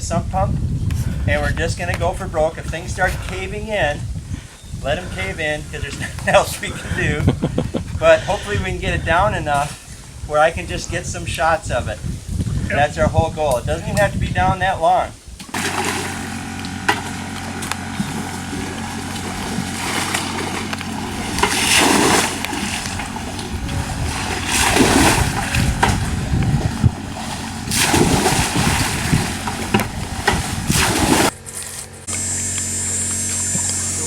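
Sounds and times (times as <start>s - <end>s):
steady mechanical hum: 0.0s - 34.0s
water splashing and sloshing: 15.4s - 32.1s.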